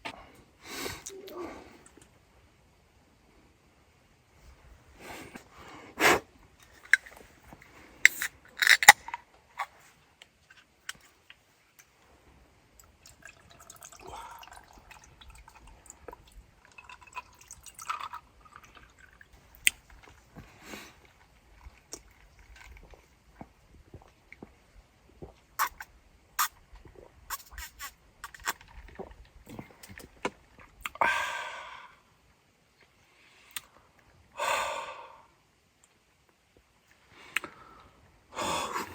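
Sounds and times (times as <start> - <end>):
small objects clicking and tapping: 8.1 - 9.2
dripping liquid: 12.8 - 20.2.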